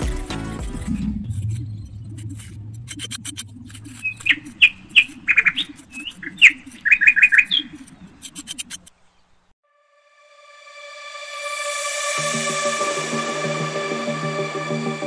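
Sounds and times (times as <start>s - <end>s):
small birds chirping: 0.1s - 9.6s
low rumble: 0.6s - 5.9s.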